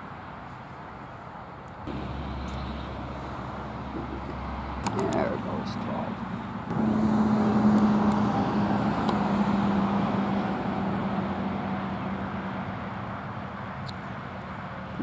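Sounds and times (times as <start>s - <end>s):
road vehicle passing: 1.8s - 15.0s.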